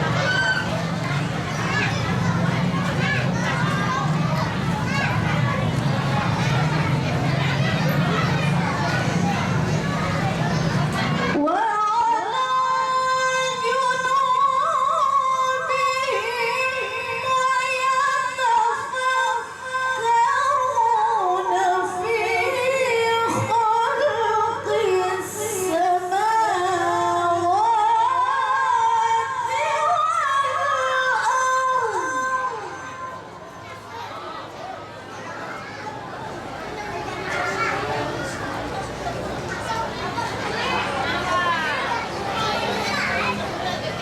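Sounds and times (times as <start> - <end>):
woman reciting melodically: 11.2 - 33.4.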